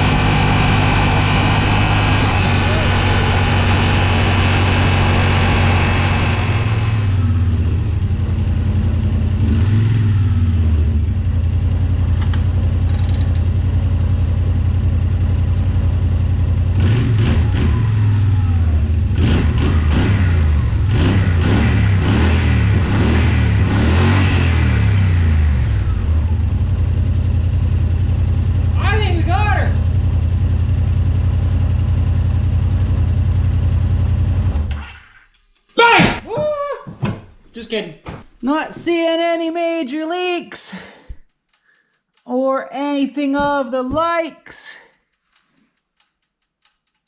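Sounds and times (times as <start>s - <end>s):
engine idling and revving: 0.0s - 34.9s.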